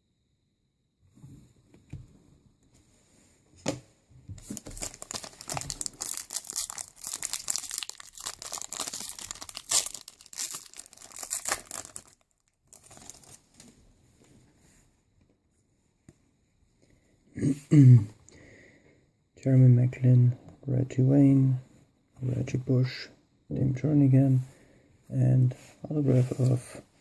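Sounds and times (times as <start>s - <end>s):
wrapper tearing and crinkling: 4.4s - 13.6s.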